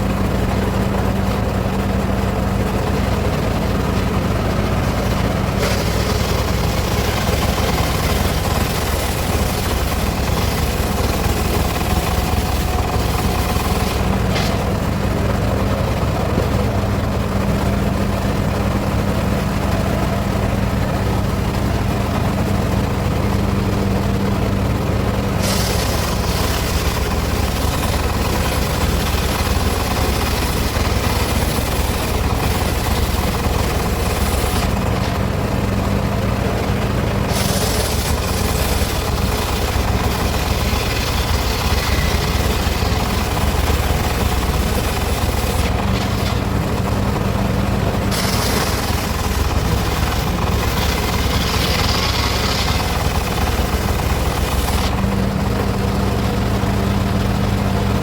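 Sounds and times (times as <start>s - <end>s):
saw blade hissing through wood: 48.1s - 53.1s.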